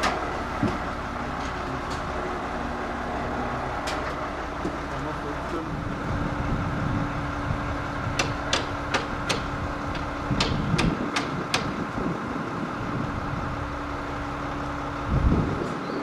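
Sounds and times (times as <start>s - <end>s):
steady machine hum: 0.0s - 15.6s
hammer strikes: 8.2s - 11.8s.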